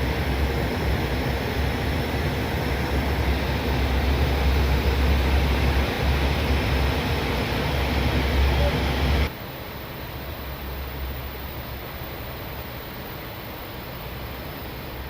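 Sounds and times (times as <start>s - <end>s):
low engine rumble: 0.0s - 9.3s
rush of airflow: 0.0s - 9.3s.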